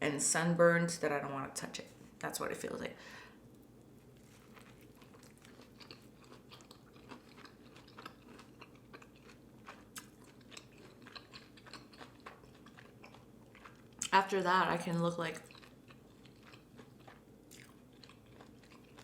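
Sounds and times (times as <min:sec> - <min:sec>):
chewing food: 0:04.0 - 0:14.2, 0:15.3 - 0:19.0.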